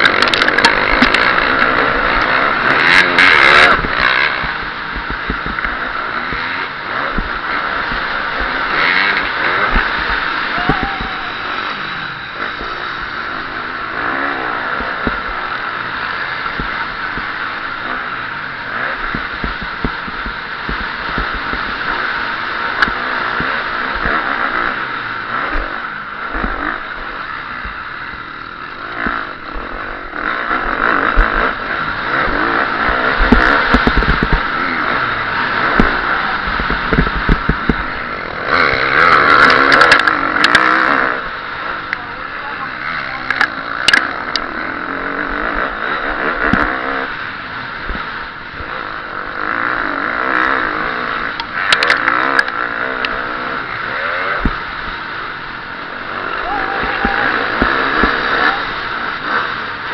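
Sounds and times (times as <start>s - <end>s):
bike knocking and rattling: 0.0s - 11.6s, 12.3s - 53.3s, 54.0s - 59.9s
motocross bike engine revving: 0.0s - 59.9s.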